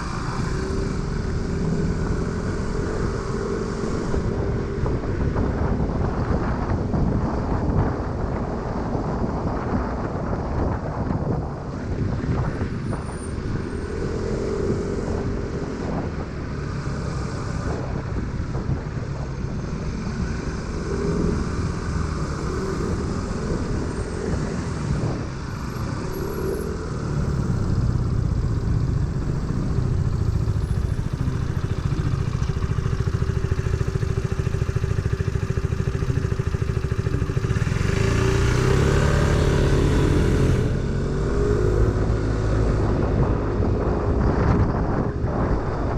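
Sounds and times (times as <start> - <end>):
wind rush over microphone: 0.0 - 45.9
scooter engine running: 26.2 - 44.2.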